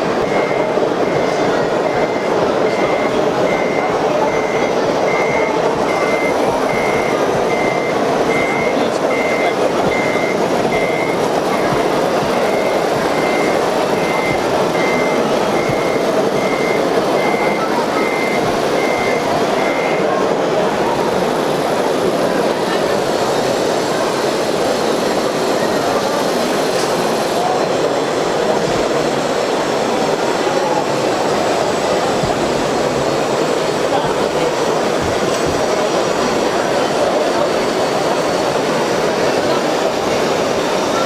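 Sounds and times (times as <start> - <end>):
steady background noise: 0.0 - 41.0
reversing alarm beeps: 0.1 - 23.5.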